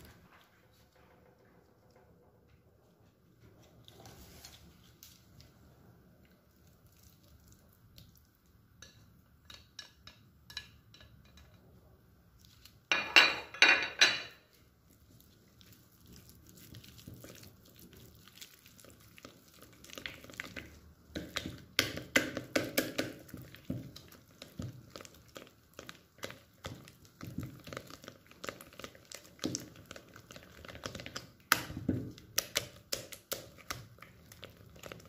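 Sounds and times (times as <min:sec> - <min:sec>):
cutlery and dishes clinking: 0:12.9 - 0:14.4.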